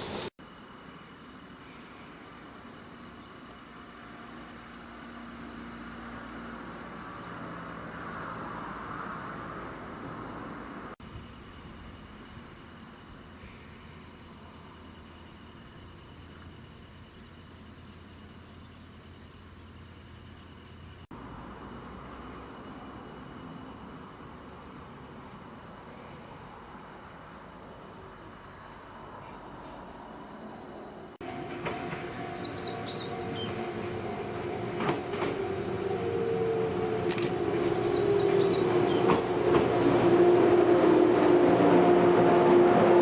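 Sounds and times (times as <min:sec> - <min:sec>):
electric train approaching: 0:00.0 - 0:00.3, 0:30.4 - 0:43.0
insects buzzing: 0:00.0 - 0:43.0.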